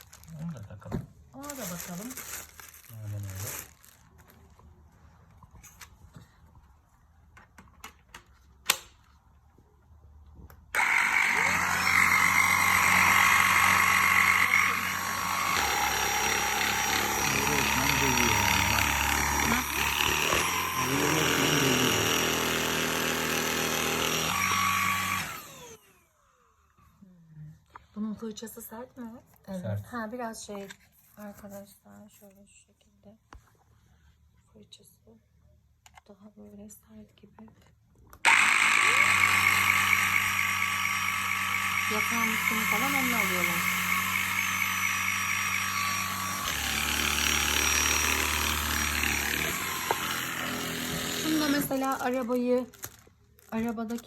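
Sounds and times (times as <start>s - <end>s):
stick vacuum motor whine: 10.7s - 26.5s, 38.2s - 52.3s.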